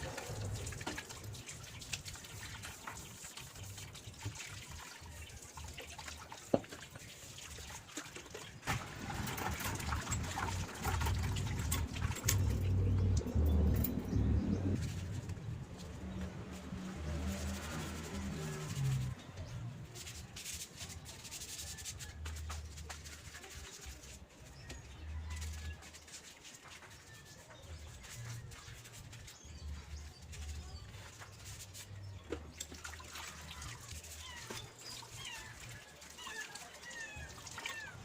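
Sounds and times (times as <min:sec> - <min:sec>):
low rumble: 0:11.0 - 0:18.2.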